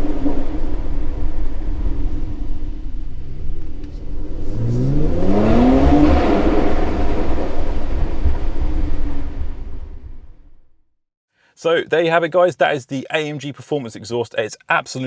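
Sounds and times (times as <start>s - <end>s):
car engine accelerating: 0.0s - 10.8s.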